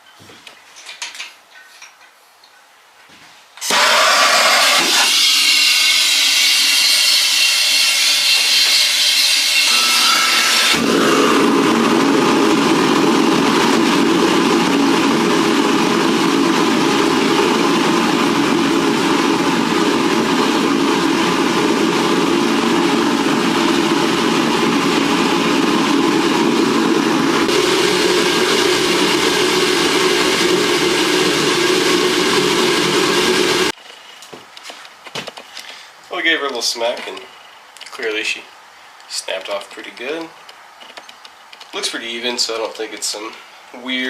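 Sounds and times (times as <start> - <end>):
gas burner running: 3.6 - 33.8.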